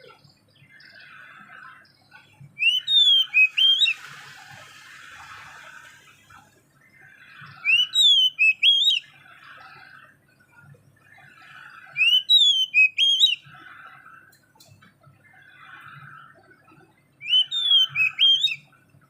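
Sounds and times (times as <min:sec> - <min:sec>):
soft bird twittering: 0:00.0 - 0:19.0
songbird whistling: 0:02.6 - 0:04.1, 0:07.4 - 0:09.2, 0:11.8 - 0:13.6, 0:17.2 - 0:18.7.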